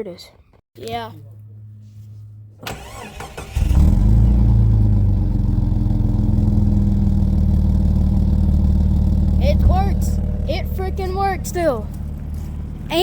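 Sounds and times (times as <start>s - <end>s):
engine starter cranking: 2.6s - 4.3s
engine idling fast: 2.7s - 13.0s.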